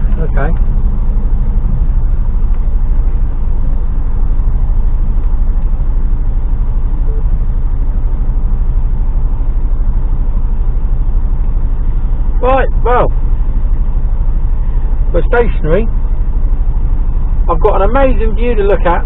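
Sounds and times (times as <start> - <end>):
truck diesel engine idling: 0.0 - 19.0.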